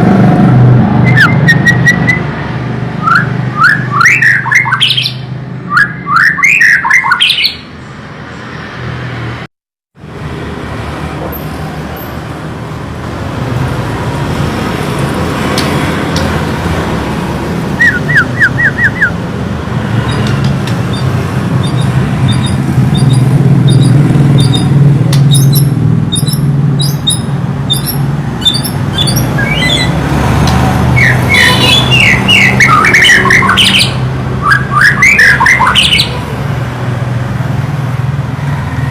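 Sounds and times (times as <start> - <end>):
songbird singing: 3.0 - 8.8, 17.8 - 19.2, 20.0 - 36.2
high bird chips: 20.0 - 29.9.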